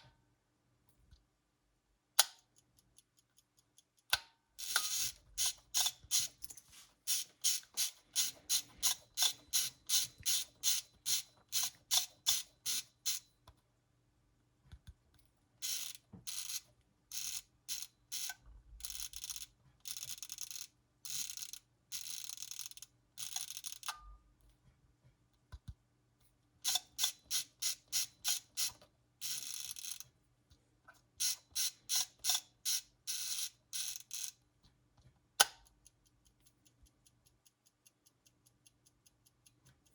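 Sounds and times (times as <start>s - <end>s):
clock winding clicks: 2.2s - 13.3s, 15.6s - 24.0s, 26.6s - 30.1s, 31.2s - 34.4s.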